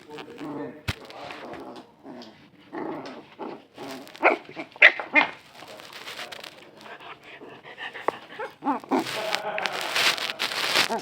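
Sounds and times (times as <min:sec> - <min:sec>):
dog barking: 0:04.2 - 0:05.4.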